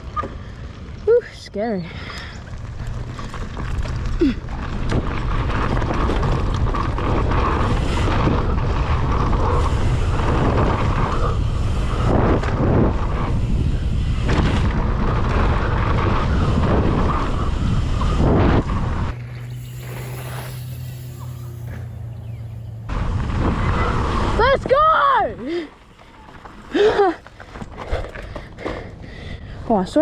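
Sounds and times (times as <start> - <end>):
bike tyres rumbling on dirt: 2.2 - 29.0
wind rushing over microphone: 4.6 - 25.8.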